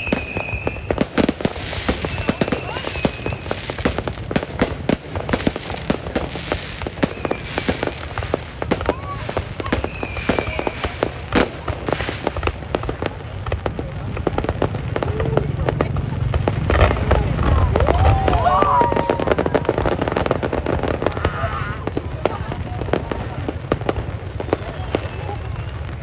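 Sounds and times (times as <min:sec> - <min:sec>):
fireworks crackling bangs: 0:00.0 - 0:26.0
fireworks whistling: 0:00.0 - 0:26.0.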